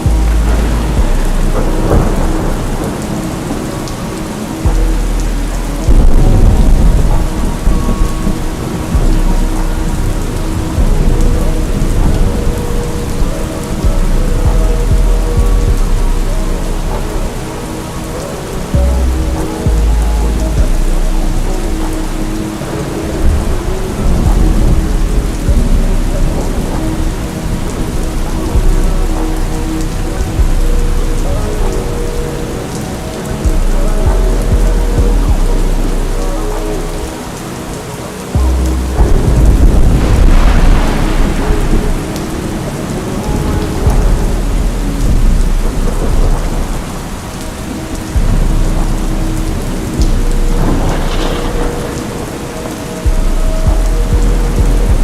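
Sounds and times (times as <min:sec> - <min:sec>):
deep low rumbling: 0:00.0 - 0:37.2, 0:38.4 - 0:55.0
slowed hip-hop track: 0:00.0 - 0:55.0
steady rain: 0:00.0 - 0:55.0.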